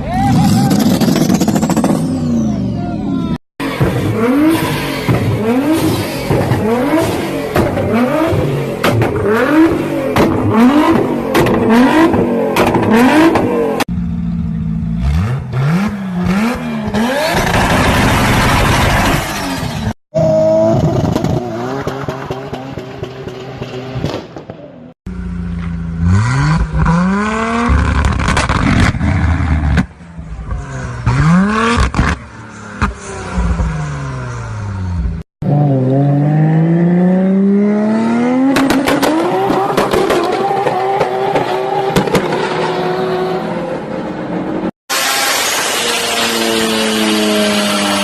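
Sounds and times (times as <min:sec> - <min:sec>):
car engines revving hard: 0:00.4 - 0:02.7, 0:03.6 - 0:13.9, 0:14.8 - 0:24.0, 0:25.7 - 0:48.0
exhaust cracks and bangs: 0:38.5 - 0:42.7.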